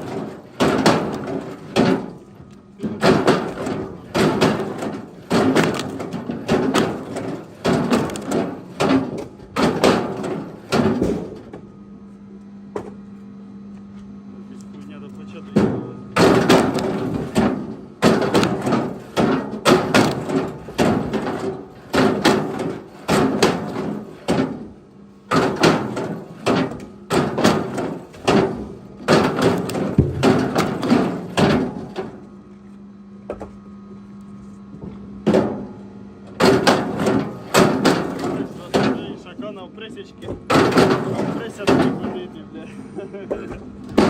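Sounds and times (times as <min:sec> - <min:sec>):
steady low hum: 0:00.0 - 0:44.0
firewood knocking against wood: 0:02.8 - 0:11.1, 0:25.3 - 0:32.2, 0:33.3 - 0:33.6.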